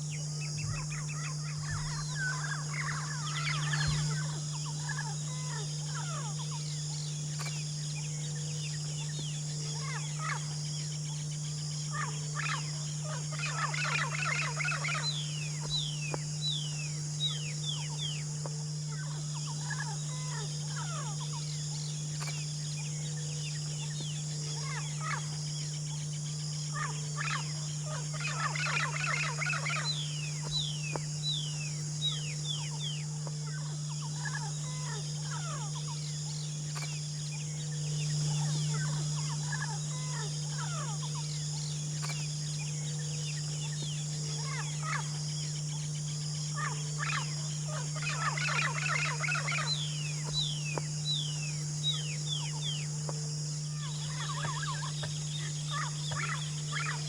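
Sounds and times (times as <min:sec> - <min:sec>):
songbird singing: 0:00.0 - 0:57.0
single bird calls: 0:26.8 - 0:36.1, 0:46.6 - 0:52.9, 0:53.8 - 0:57.0.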